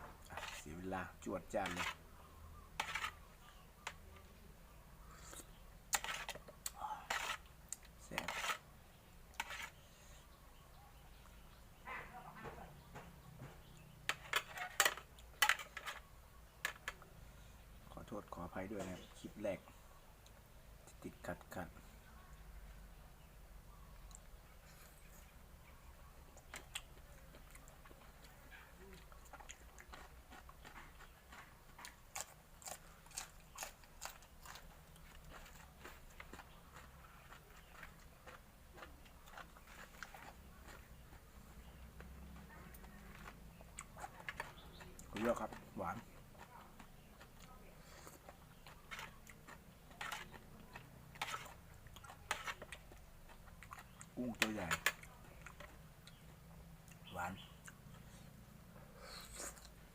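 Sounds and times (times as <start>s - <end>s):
person chewing crunchy food: 26.3s - 57.0s.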